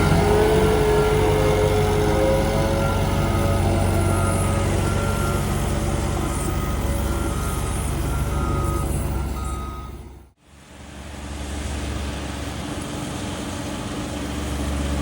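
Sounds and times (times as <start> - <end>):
back-up alarm beeping: 0.0 - 10.3
heavy equipment engine running: 0.0 - 15.0.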